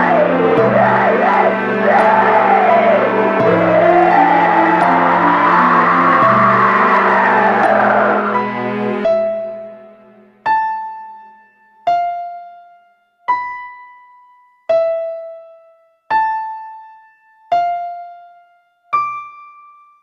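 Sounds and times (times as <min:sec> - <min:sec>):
slow synth keyboard melody: 0:00.0 - 0:20.0.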